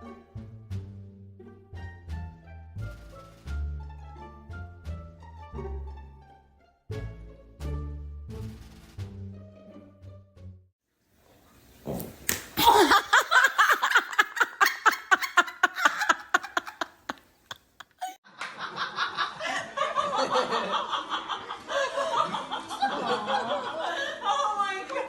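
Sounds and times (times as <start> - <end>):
person laughing hard: 12.6 - 18.2.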